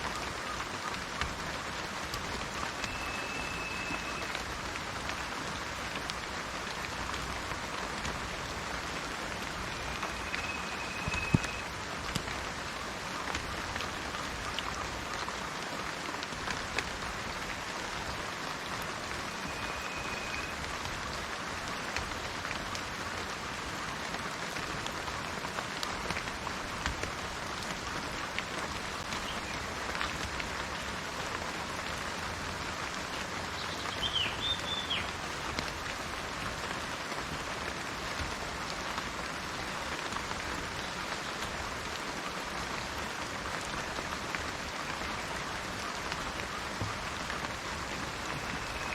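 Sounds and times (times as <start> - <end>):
rain on plants: 0.0 - 48.9
thin high whistle: 2.8 - 4.3, 10.0 - 11.6.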